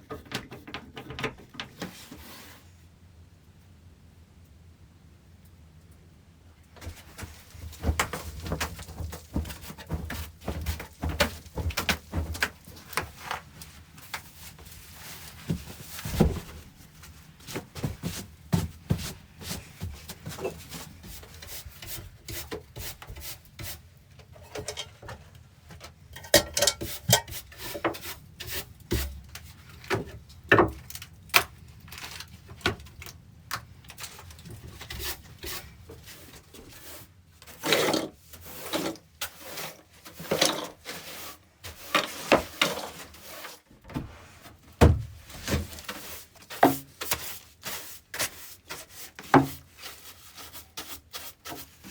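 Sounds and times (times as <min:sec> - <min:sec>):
knocks clicks and scraping: 0:00.0 - 0:02.0, 0:17.8 - 0:36.8
hands handling wood: 0:06.8 - 0:51.9.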